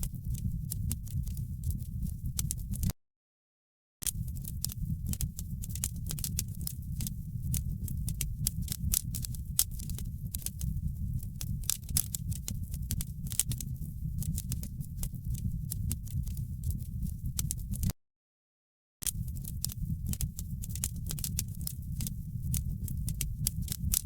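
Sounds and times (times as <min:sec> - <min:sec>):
wood fire crackling: 0:04.1 - 0:17.9, 0:19.1 - 0:24.0.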